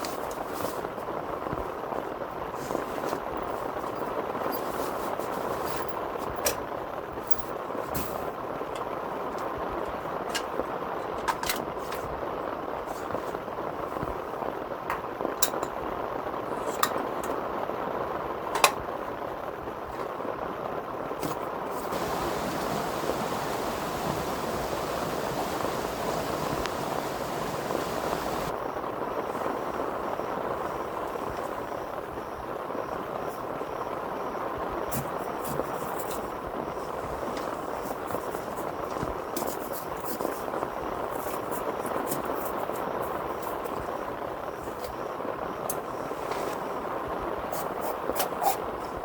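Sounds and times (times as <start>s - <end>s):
heavy rain on a tent: 0.0s - 49.0s
bright hiss: 21.7s - 32.2s.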